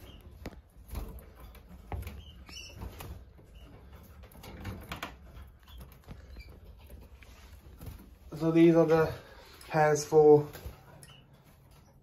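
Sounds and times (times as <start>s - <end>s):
canary chirps: 0.0s - 8.4s, 10.6s - 12.0s
bird feet and wings clicking on cage: 0.0s - 8.8s.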